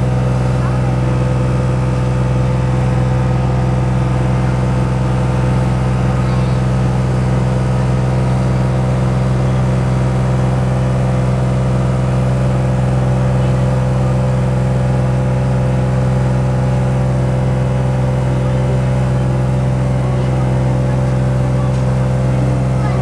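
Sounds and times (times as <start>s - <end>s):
diesel locomotive engine idling: 0.0s - 23.0s.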